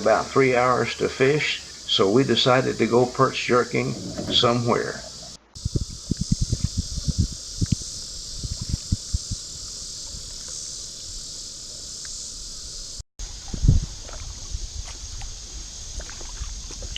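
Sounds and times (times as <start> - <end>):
high-pitched insect chorus: 0.0 - 16.9
low thumps: 2.3 - 10.3.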